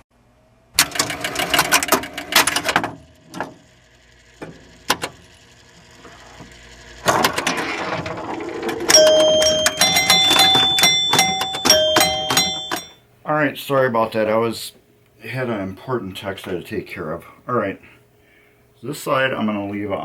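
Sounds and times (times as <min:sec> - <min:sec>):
rapid mechanical clicking and rattling: 0:00.8 - 0:08.9
steady ringing tones: 0:08.3 - 0:13.0.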